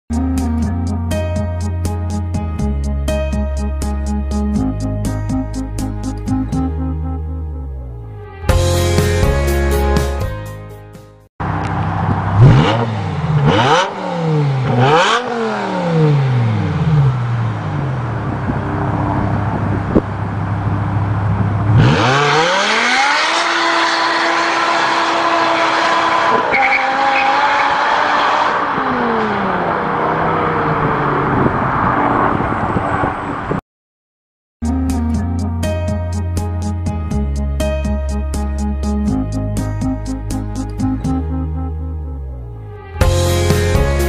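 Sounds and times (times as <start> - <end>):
car engine revving: 11.4 - 32.8
tyre squeal: 25.5 - 27.8.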